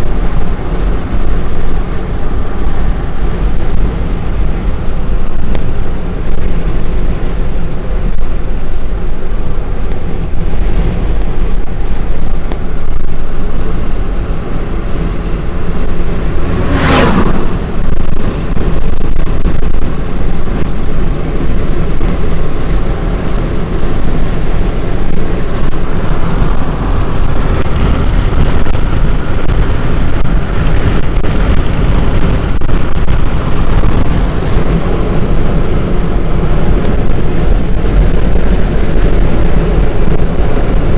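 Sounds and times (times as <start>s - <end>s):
wind and road noise in car: 0.0s - 40.9s
sharp whoosh: 14.8s - 19.8s.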